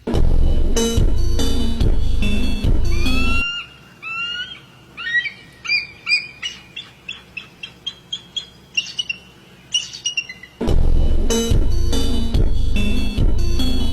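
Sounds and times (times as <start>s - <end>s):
bird whistled notes: 2.9s - 10.6s
bird sharp chirps: 2.9s - 10.7s.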